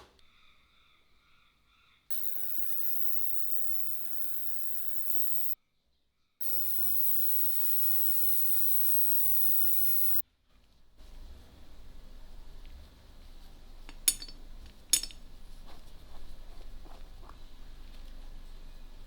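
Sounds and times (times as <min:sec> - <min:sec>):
electric tool humming with hiss: 0:02.1 - 0:05.6, 0:06.4 - 0:10.2.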